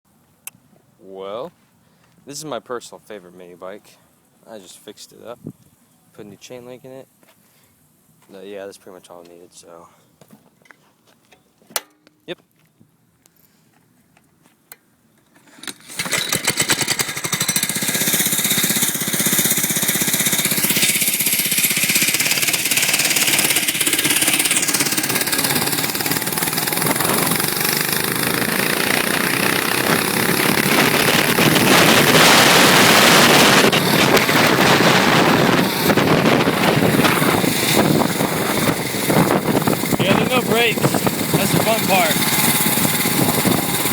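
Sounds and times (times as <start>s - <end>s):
small engine starting and revving: 15.3s - 43.9s.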